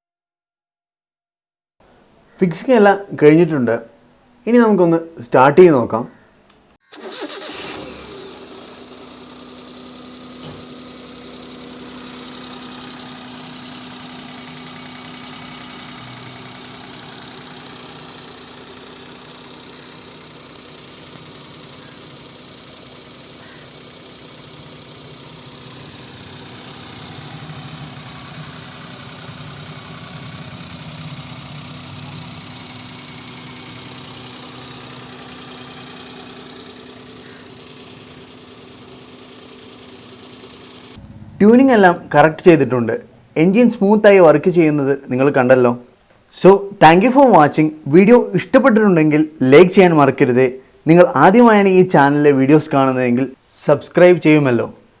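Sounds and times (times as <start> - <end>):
car engine idling: 7.0 - 44.4.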